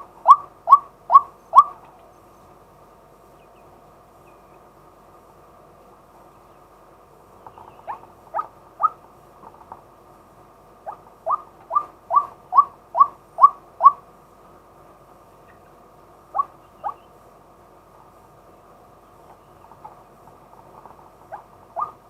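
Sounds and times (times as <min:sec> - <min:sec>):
waterhen calling rising notes: 0:10.9 - 0:14.0.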